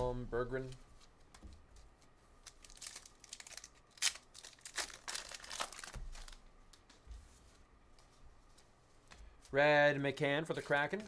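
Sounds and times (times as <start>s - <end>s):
foil wrapper crinkling and tearing: 2.4s - 6.4s.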